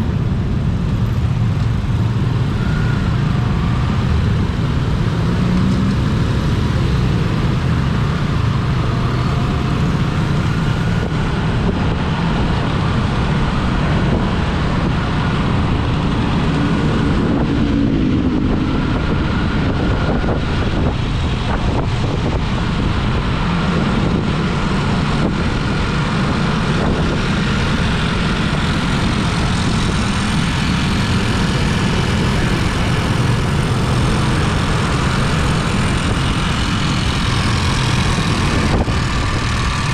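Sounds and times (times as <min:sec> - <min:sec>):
vehicle engine and road noise: 0:00.0 - 0:39.9
wind buffeting microphone: 0:03.4 - 0:39.9.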